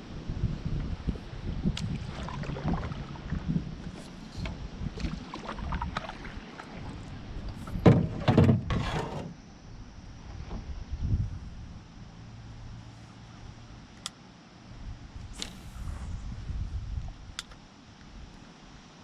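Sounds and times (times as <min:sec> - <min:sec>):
wind rumbling on microphone: 0:00.0 - 0:13.8, 0:14.7 - 0:18.4
knocks and scrapes in canoe: 0:03.8 - 0:09.4.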